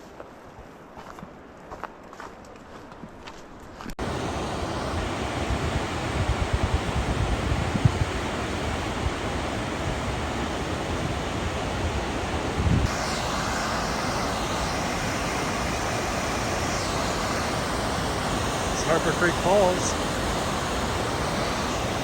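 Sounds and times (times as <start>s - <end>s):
waterfall rushing: 4.0s - 22.0s
wind buffeting microphone: 4.2s - 15.9s.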